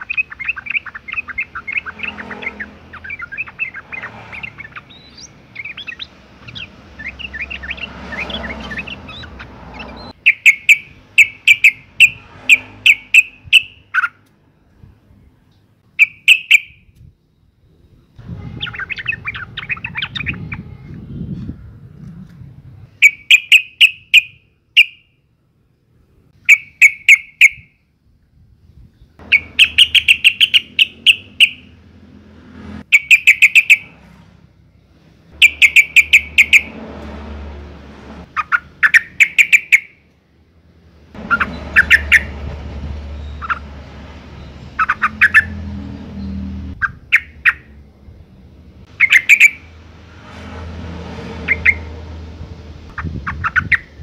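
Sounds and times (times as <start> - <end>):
bulbul chattering call: 0.0 - 14.2, 16.0 - 16.8, 29.2 - 31.8, 32.9 - 33.9, 35.4 - 36.8, 38.3 - 40.0, 41.2 - 42.4, 44.4 - 45.6, 48.9 - 49.7.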